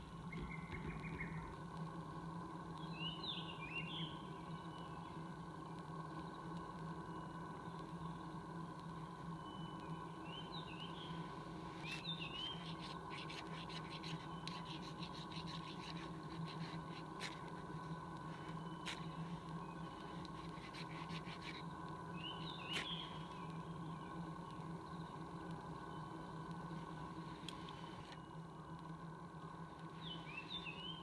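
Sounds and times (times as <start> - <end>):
faint steady hum: 0.0 - 31.0
small bird chirping: 10.3 - 24.0
twine fibres scratchy crackles: 11.1 - 30.8.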